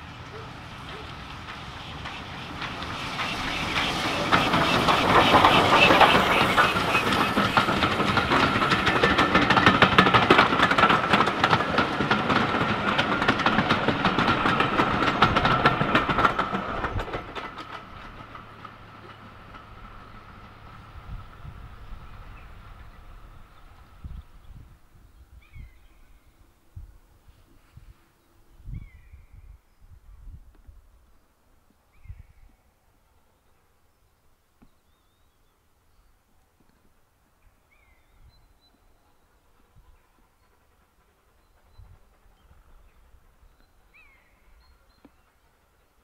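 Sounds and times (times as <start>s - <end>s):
wheels clicking over rail joints: 0.0s - 25.8s
steam locomotive passing: 0.0s - 46.0s.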